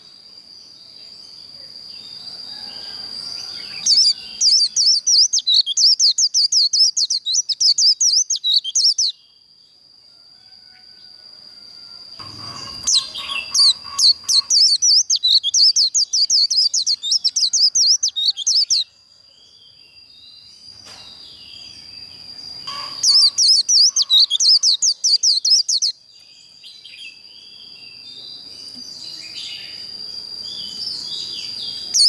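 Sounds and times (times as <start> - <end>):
bird whistling and warbling: 3.8 - 9.1, 12.3 - 18.8, 22.7 - 25.9.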